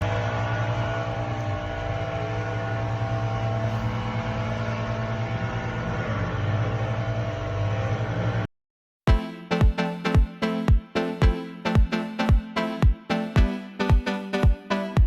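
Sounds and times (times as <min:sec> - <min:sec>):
machinery droning: 0:00.0 - 0:08.5.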